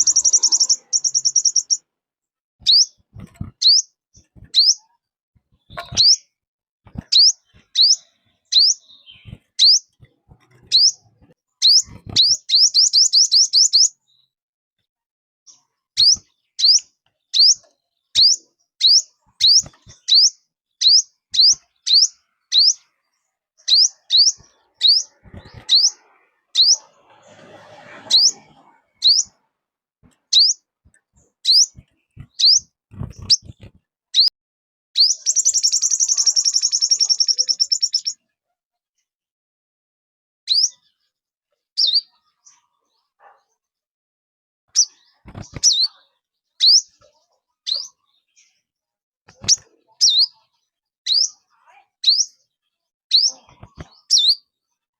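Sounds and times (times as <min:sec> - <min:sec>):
songbird high call notes: 0:00.0 - 0:01.8.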